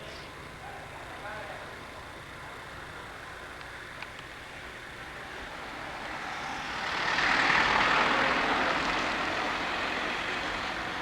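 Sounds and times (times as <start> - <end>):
vehicle passing by: 5.5 - 11.0.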